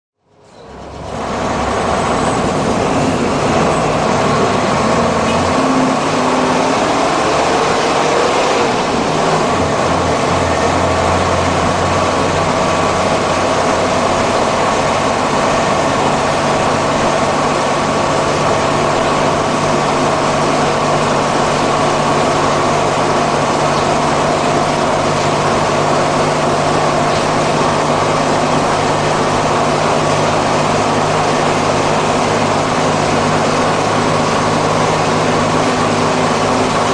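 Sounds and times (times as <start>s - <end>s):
diesel bus engine running: 0.2s - 36.9s.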